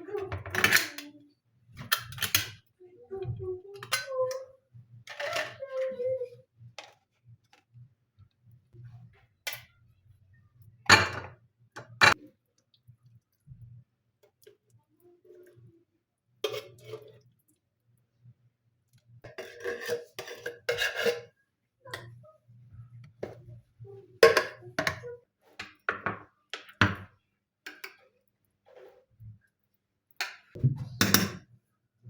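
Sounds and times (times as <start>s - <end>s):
dishes and utensils clattering: 0.0s - 1.2s, 5.1s - 6.0s, 10.9s - 12.3s, 16.4s - 17.2s, 19.3s - 22.2s, 24.2s - 27.1s, 30.2s - 31.5s.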